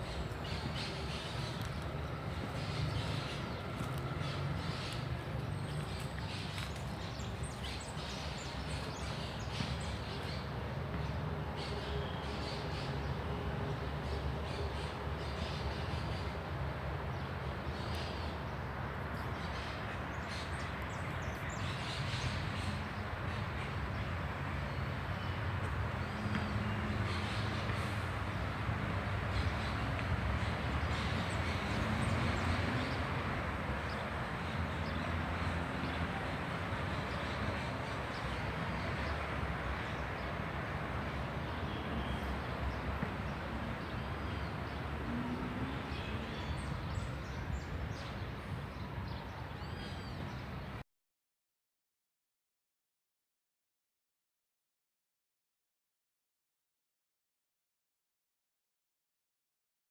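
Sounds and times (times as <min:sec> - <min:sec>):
birds chirping: 0:00.0 - 0:16.5
city traffic rumble: 0:00.0 - 0:50.8.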